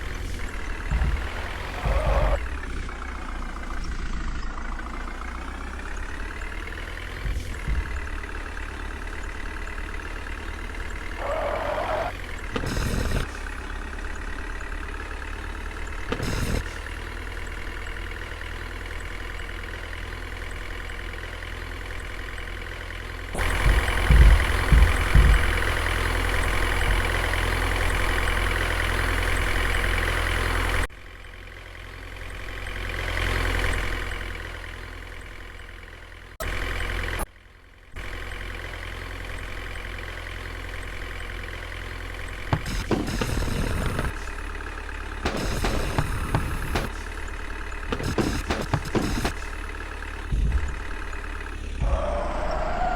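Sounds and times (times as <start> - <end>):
heavy thumps: 0.0 - 4.0, 4.8 - 11.3, 23.4 - 28.2, 42.5 - 44.4, 45.2 - 52.4
heavy diesel engine running: 0.0 - 52.9.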